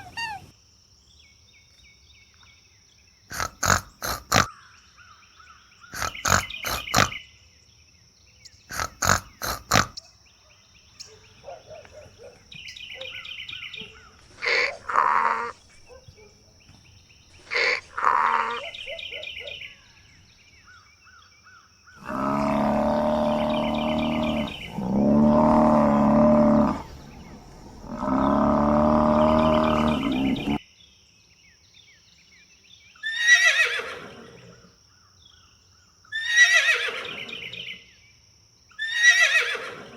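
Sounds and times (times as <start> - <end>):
long loud animal calls: 0.0 - 0.5, 3.3 - 4.6, 5.9 - 7.2, 8.7 - 10.0, 13.0 - 16.3, 17.4 - 19.8, 22.0 - 30.6, 33.0 - 34.6, 36.1 - 37.8, 38.8 - 39.9
short falling animal call: 0.0 - 0.5, 17.4 - 18.9.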